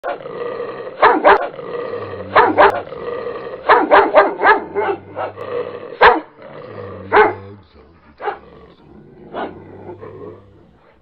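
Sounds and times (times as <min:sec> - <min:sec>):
dog barking: 0:01.0 - 0:01.6, 0:02.2 - 0:03.0, 0:03.6 - 0:05.4, 0:06.0 - 0:06.3, 0:07.1 - 0:07.5, 0:08.2 - 0:08.6, 0:09.3 - 0:10.1.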